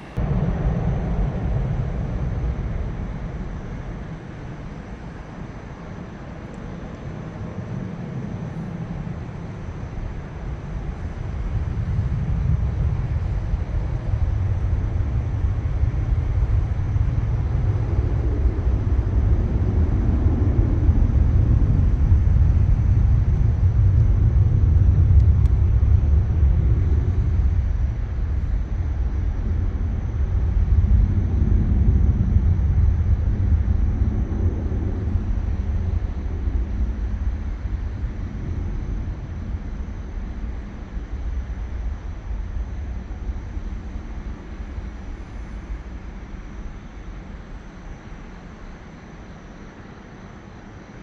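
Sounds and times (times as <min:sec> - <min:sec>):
aircraft engine rumble: 0:00.0 - 0:51.0.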